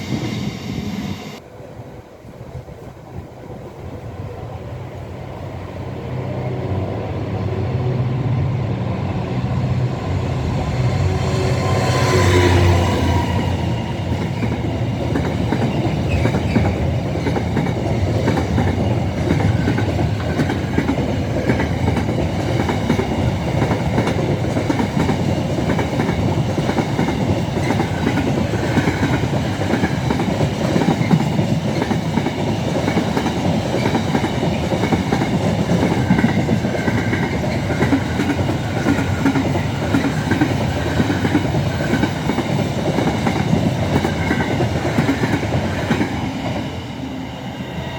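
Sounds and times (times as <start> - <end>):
train wheels clicking over rail joints: 14.1 - 46.2.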